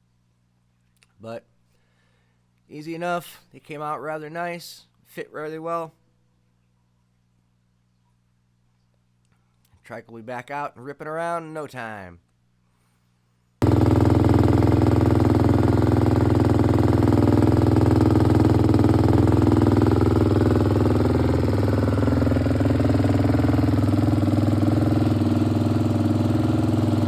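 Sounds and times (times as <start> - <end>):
motorcycle engine idling: 13.6 - 27.0.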